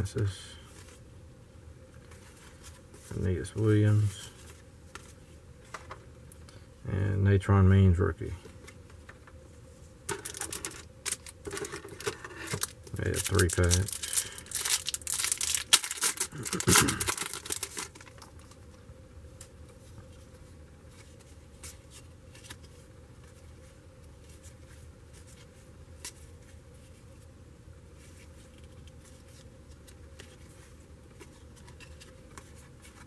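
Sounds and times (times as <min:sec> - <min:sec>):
wrapper crinkling and tearing: 0:10.1 - 0:18.6.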